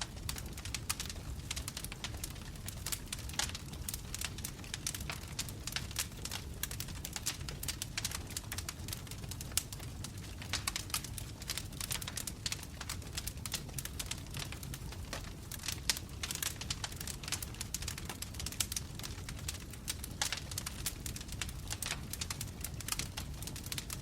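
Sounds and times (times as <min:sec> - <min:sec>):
low rumble of flames: 0:00.0 - 0:24.0
wood fire crackling: 0:00.0 - 0:24.0.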